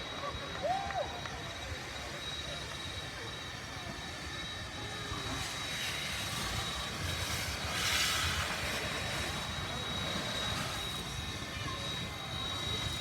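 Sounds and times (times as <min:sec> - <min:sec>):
steam locomotive hissing: 0:04.2 - 0:13.0.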